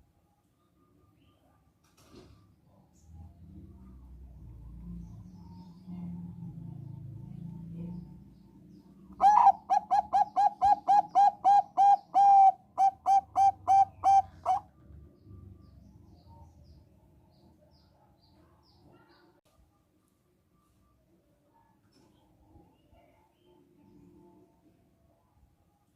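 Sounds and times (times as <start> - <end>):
dove cooing: 9.2 - 14.7.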